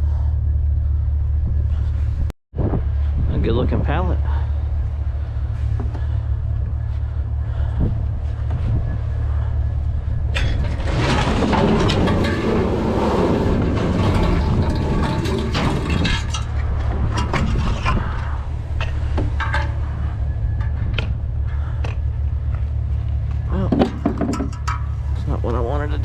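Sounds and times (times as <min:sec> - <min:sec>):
vehicle engine idling: 0:00.0 - 0:17.3, 0:18.0 - 0:26.0
rustling and clattering handling: 0:10.3 - 0:25.4.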